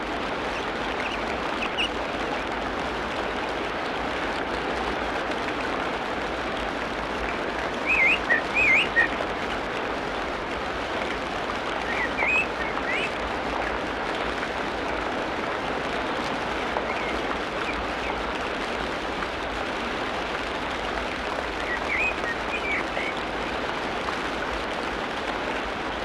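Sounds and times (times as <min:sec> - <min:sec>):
rain hissing: 0:00.0 - 0:26.0
bird whistling wavering notes: 0:07.8 - 0:09.1, 0:11.9 - 0:13.1, 0:21.7 - 0:23.1.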